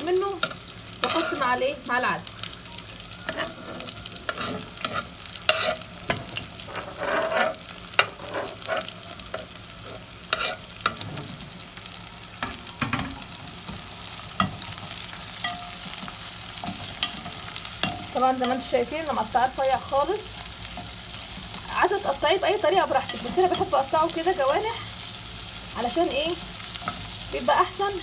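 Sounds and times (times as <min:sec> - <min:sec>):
onions sizzling in oil: 0:00.0 - 0:28.0
utensil scraping a pan: 0:01.0 - 0:01.6, 0:03.3 - 0:11.6.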